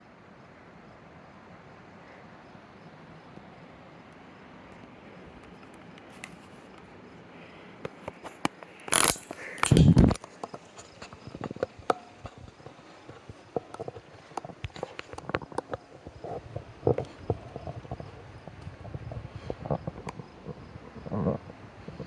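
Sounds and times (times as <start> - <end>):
footsteps on rock: 9.0 - 22.0.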